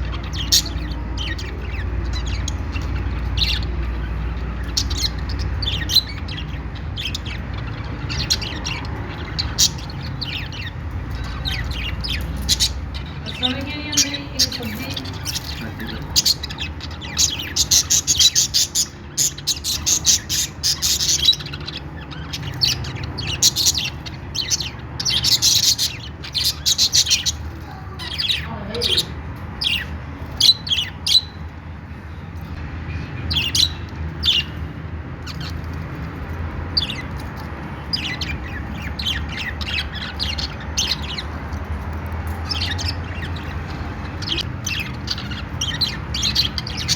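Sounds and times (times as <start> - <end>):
budgerigars chirping and chattering: 0.0 - 46.9.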